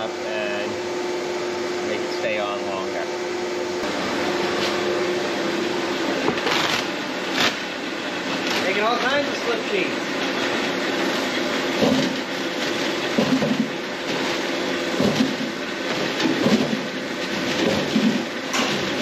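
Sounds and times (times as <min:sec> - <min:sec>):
machinery running: 0:01.8 - 0:19.0
heavy machine clatter: 0:11.8 - 0:19.0.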